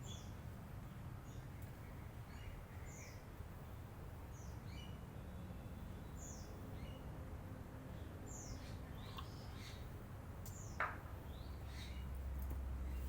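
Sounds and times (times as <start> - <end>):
bird chirping: 0.0 - 0.4, 1.2 - 3.3, 4.3 - 7.1, 8.0 - 13.0.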